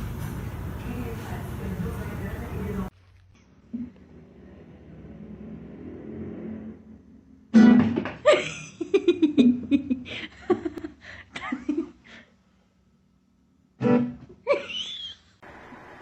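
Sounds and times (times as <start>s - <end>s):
plucked guitar music: 13.8s - 14.2s.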